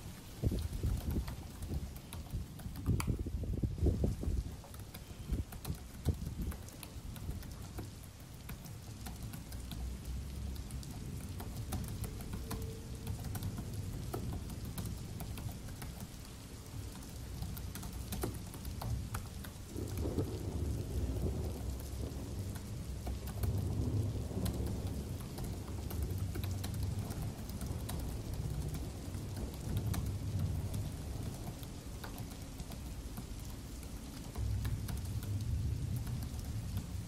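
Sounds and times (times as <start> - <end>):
steady rain: 0.0 - 37.0
laptop keyboard typing: 0.5 - 3.3, 4.1 - 37.0
rolling thunder: 19.7 - 32.0.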